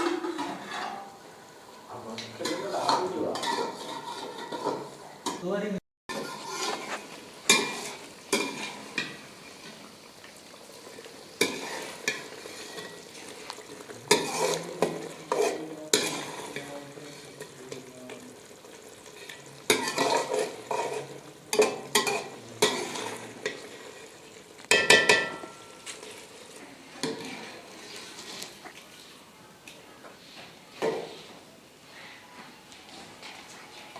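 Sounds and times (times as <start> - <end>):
utensil scraping a pan: 0.0 - 1.2, 2.2 - 5.4, 6.1 - 9.8, 11.3 - 17.6, 19.2 - 26.2, 27.0 - 28.7
food sizzling in a pan: 0.0 - 33.9.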